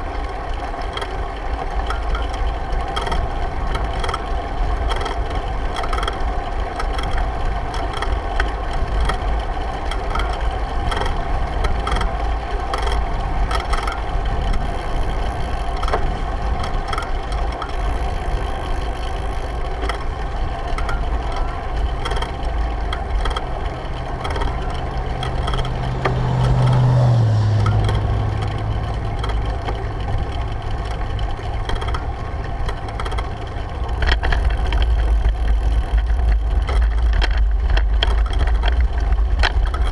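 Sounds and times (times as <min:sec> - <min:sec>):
bike rattling and clicking: 0:00.0 - 0:39.9
passing vehicle engine hum: 0:10.5 - 0:36.0.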